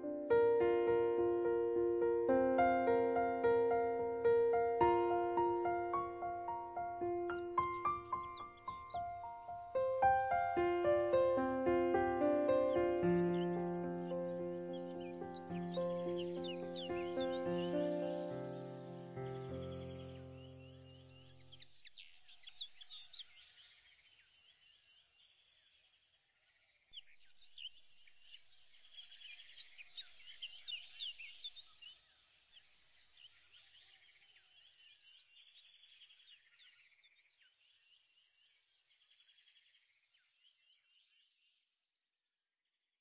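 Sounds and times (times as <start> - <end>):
birds chirping: 0.0 - 23.2.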